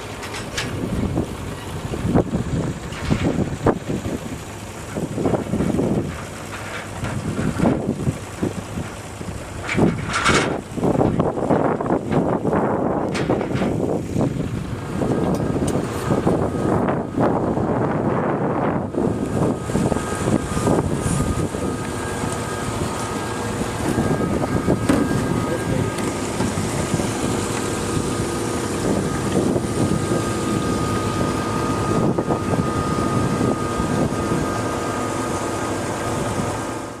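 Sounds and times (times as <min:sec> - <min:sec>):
faint steady whine: 0:00.0 - 0:37.0
turboprop engine rush in cabin: 0:00.0 - 0:37.0.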